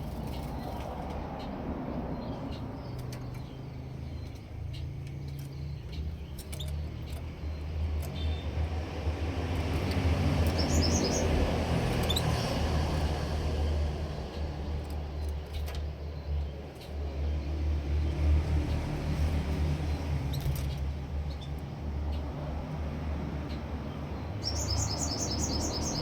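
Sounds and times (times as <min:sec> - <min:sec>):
high bird chirps: 0:10.4 - 0:11.4, 0:24.4 - 0:26.0.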